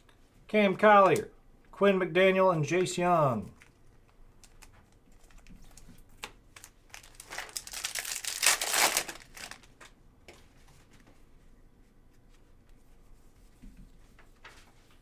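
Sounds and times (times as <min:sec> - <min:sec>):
plastic wrapper crinkling: 0:03.6 - 0:10.0.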